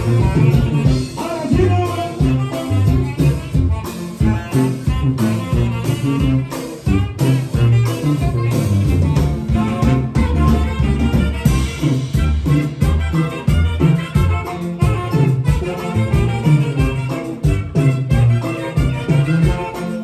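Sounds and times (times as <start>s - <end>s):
band playing dance beat: 0.0s - 20.0s
pulsing bass notes: 0.0s - 20.0s.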